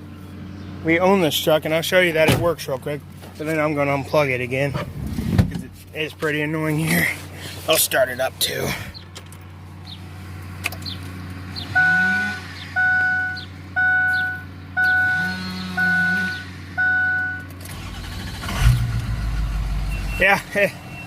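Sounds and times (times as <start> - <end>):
seatbelt warning chime beeping: 12.8 - 17.9, 19.9 - 21.0
engine turning over and starting: 17.6 - 20.3.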